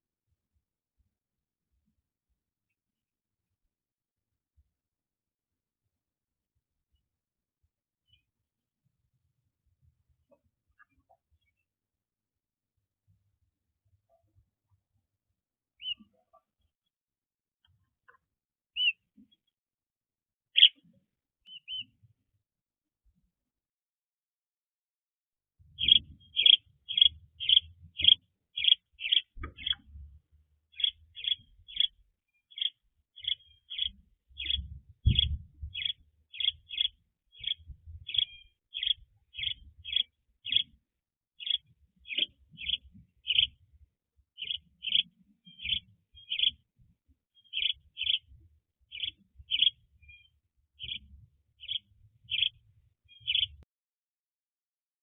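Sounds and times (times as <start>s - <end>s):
bird chirping: 15.8s - 16.4s, 18.8s - 19.5s, 20.6s - 20.8s, 21.4s - 22.0s, 25.7s - 30.0s, 30.6s - 40.8s, 41.4s - 43.6s, 44.4s - 53.6s.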